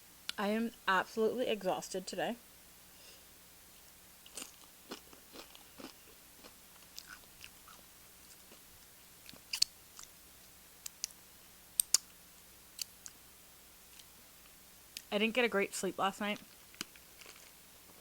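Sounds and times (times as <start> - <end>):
chips being crunched: 16.4 - 17.6.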